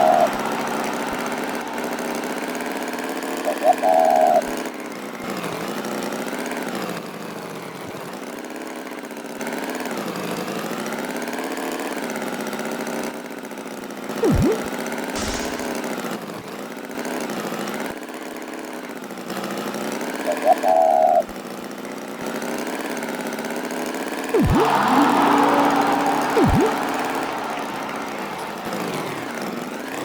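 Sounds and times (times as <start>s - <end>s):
sliding whistle: 14.2s - 15.9s, 24.4s - 29.5s.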